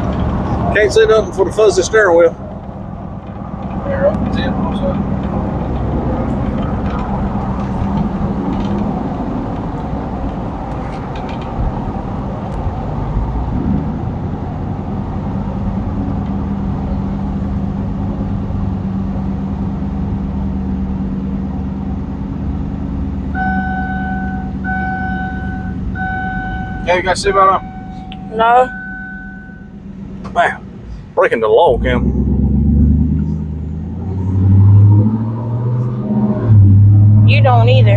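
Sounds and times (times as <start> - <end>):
engine drone inside a vehicle: 0.0 - 37.9
road noise: 0.0 - 37.9
seatbelt warning chime beeping: 23.4 - 29.8.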